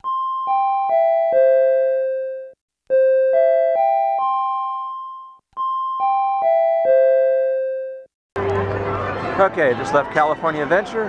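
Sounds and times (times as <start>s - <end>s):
electronic chime arpeggio: 0.4s - 5.4s.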